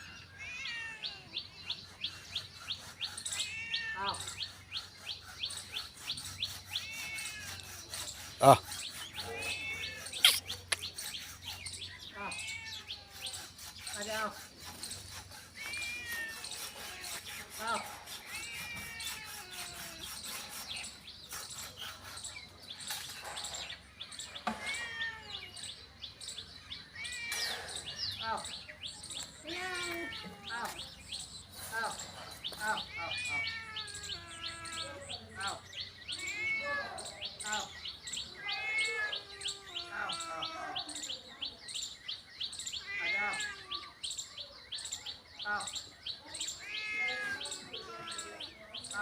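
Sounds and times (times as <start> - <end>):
cat meowing: 0.0 - 1.4, 3.3 - 4.4, 6.7 - 7.7, 9.2 - 10.6, 12.1 - 13.3, 15.6 - 17.3, 18.2 - 20.0, 24.4 - 25.6, 27.0 - 27.8, 29.4 - 30.8, 32.6 - 35.2, 36.1 - 37.2, 38.3 - 40.8, 42.8 - 43.9, 46.6 - 48.4
longer bird calls: 0.0 - 49.0
small birds chirping: 0.0 - 49.0.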